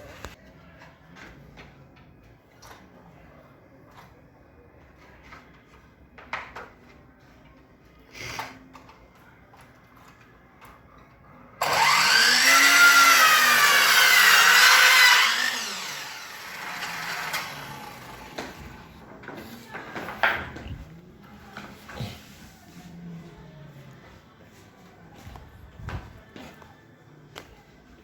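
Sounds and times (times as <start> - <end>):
electric power saw cutting wood: 11.6 - 18.9.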